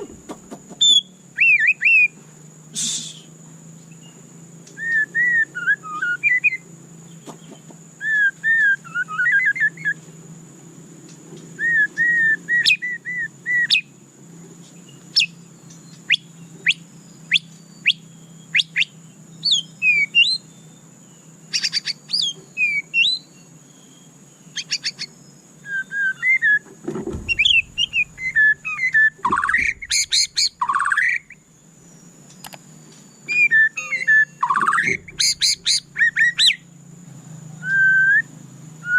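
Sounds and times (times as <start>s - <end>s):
bird singing whistled phrases: 0.8s - 2.2s, 2.8s - 6.6s, 8.0s - 10.0s, 11.6s - 13.9s, 15.1s - 20.7s, 21.5s - 26.6s, 27.2s - 31.4s, 33.2s - 36.6s, 37.6s - 38.9s
faint steady high tone: 33.3s - 35.9s.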